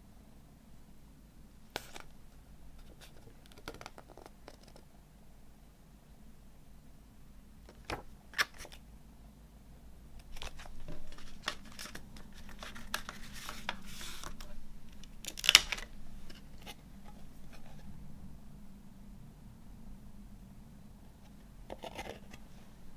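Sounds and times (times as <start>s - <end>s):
packaging rustling: 10.2s - 16.5s.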